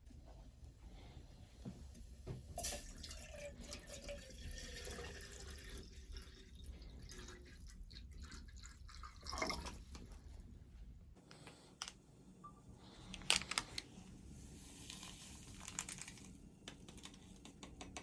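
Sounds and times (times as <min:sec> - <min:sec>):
water dripping and trickling: 0:02.6 - 0:10.2.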